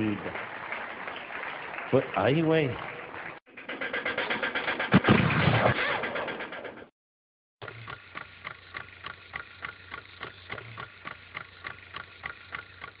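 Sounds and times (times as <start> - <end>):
sharp regular ticks: 7.6 - 13.0.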